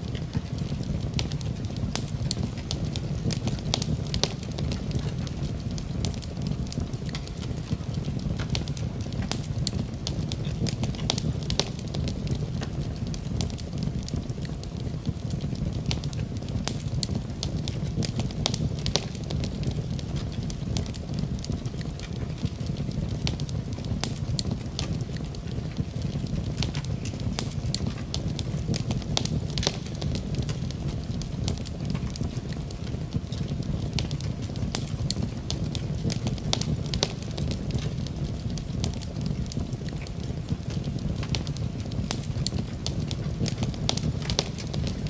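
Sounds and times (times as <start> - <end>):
rain: 0.0 - 45.0
wood fire crackling: 0.0 - 45.0.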